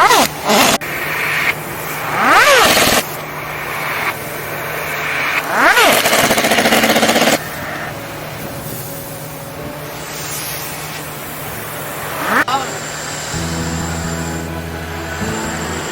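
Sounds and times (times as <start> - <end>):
pneumatic impact wrench: 0.0 - 7.6
low machinery hum: 3.0 - 15.9.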